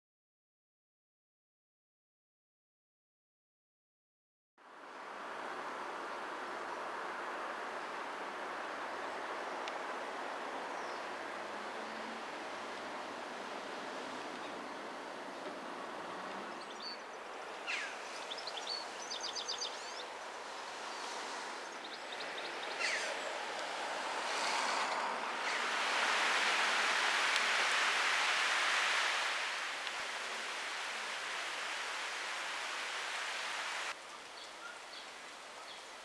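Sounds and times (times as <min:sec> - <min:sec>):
bird chirps and trills: 0:21.7 - 0:23.4.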